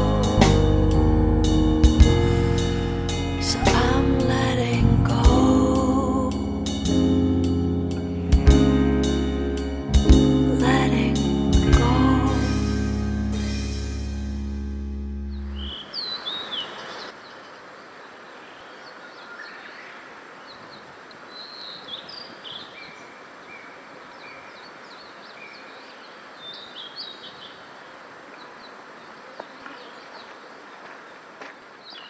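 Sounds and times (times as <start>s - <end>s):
steady outdoor hiss: 0.0s - 32.0s
small birds chirping: 15.3s - 32.0s.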